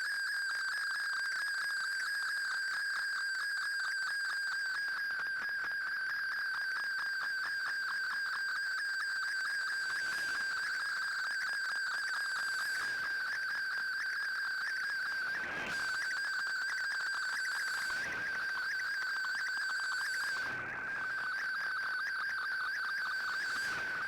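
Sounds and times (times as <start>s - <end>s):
radio data signal whistle: 6.4s - 24.0s.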